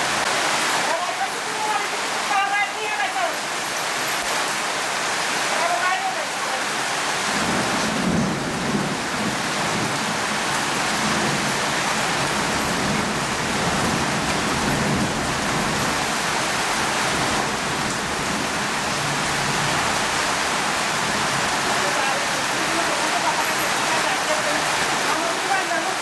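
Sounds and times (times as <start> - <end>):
steady rain falling: 0.0 - 26.0
low rumble of thunder: 7.3 - 16.0.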